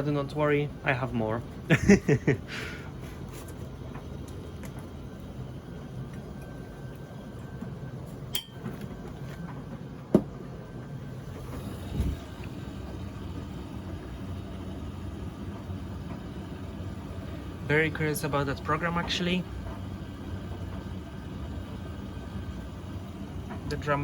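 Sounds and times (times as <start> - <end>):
washing machine humming: 0.0 - 24.0
washing machine clicks: 8.3 - 10.4.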